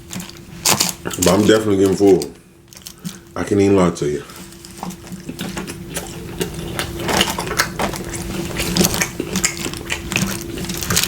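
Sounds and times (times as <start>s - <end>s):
person chewing with crunches: 0.0s - 3.4s, 4.2s - 11.0s
faint steady hum: 0.0s - 11.0s.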